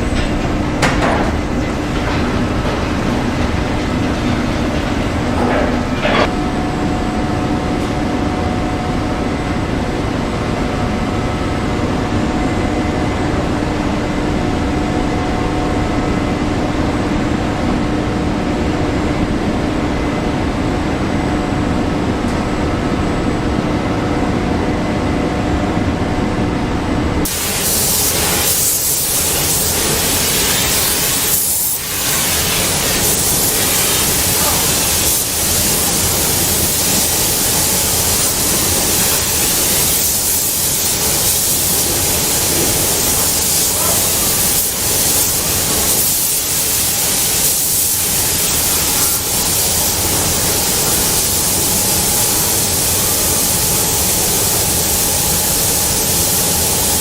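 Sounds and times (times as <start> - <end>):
factory machinery humming: 0.0 - 57.0
loud bright hiss: 27.2 - 57.0.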